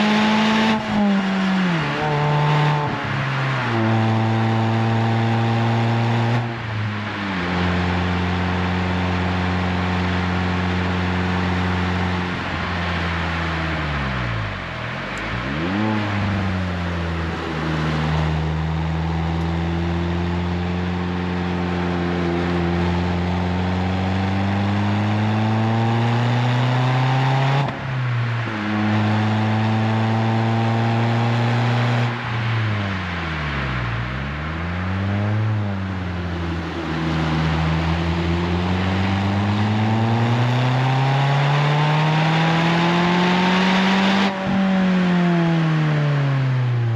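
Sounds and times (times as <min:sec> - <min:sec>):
car engine driving: 0:00.0 - 0:46.9.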